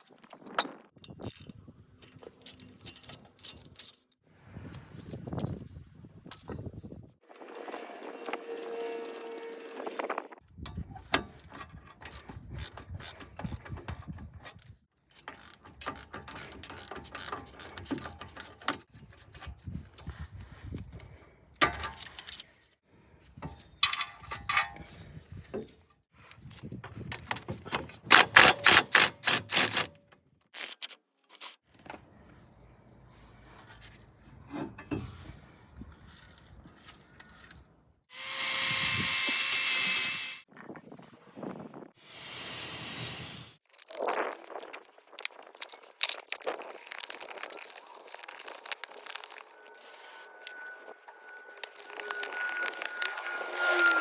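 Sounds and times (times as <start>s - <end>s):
socket ratchet clicking: 28.1s - 29.9s.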